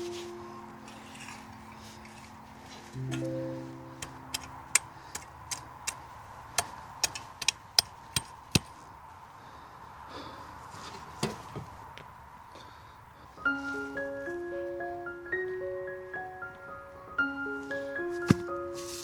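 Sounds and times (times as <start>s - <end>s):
sharp irregular knocks: 6.6s - 8.7s.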